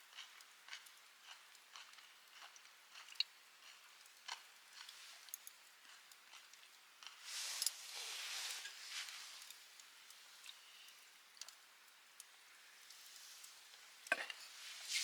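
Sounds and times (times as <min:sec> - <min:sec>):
wood fire crackling: 0:04.0 - 0:15.0
fire hissing: 0:07.2 - 0:11.0, 0:12.8 - 0:15.0.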